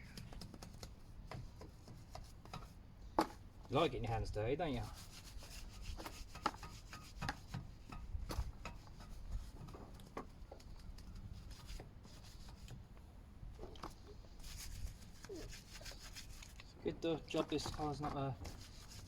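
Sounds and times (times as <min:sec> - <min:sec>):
brush scrubbing a wheel: 0:03.7 - 0:12.9, 0:13.8 - 0:19.0.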